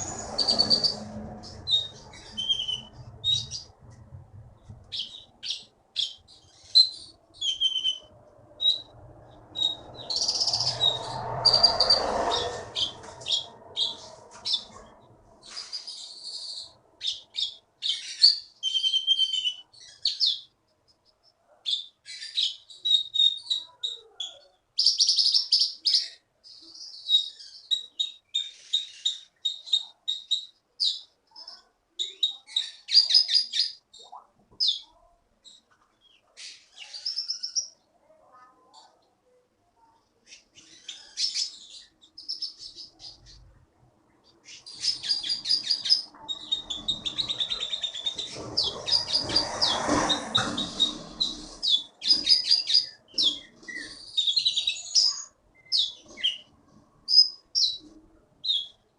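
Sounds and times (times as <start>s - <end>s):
rushing noise: 0.0s - 3.2s, 8.9s - 15.7s
songbird chirping and trilling: 0.0s - 4.0s, 4.6s - 39.2s, 39.8s - 58.9s.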